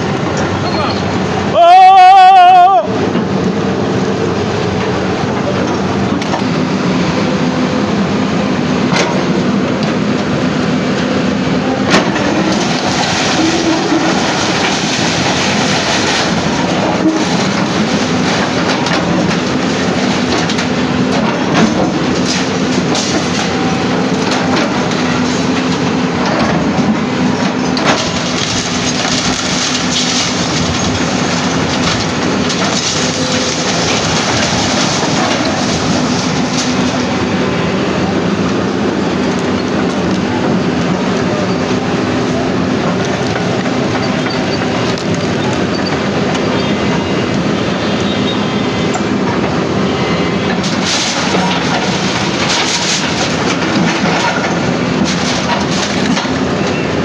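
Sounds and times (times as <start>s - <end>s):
heavy machinery running: 0.0s - 57.0s.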